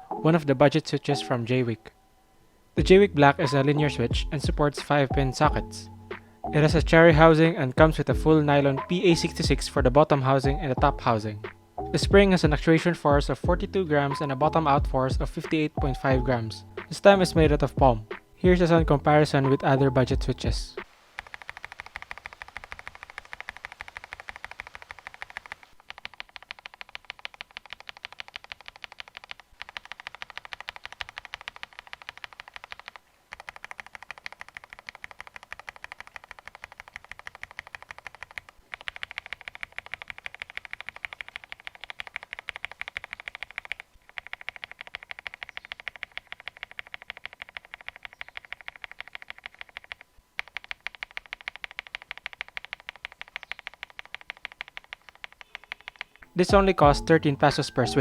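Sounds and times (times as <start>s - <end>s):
mechanical keyboard typing: 21.2s - 56.8s.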